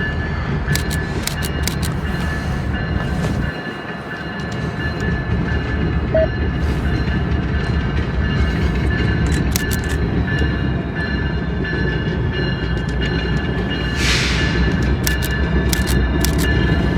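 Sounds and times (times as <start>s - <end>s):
rumble of wheels on rail: 0.0s - 16.9s
sharp wheel clicks: 0.7s - 2.1s, 9.2s - 10.1s, 15.0s - 16.9s.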